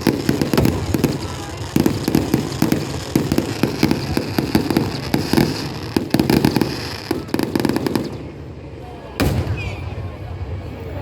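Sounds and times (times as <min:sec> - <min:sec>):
firework deep booms: 0:00.0 - 0:08.4, 0:09.2 - 0:10.2
firework sharp bangs: 0:00.0 - 0:08.4, 0:09.2 - 0:10.2.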